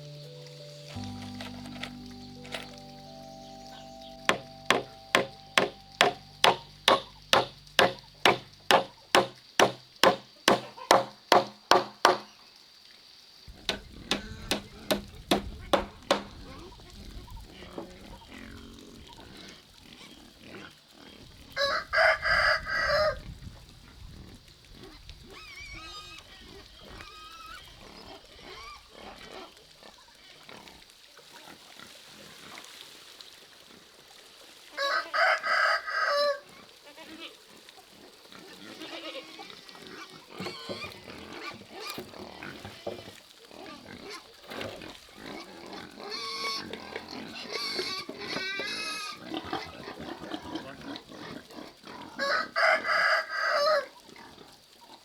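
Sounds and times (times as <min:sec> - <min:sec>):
rooster crowing: 0:34.8 - 0:36.4, 0:52.2 - 0:53.8.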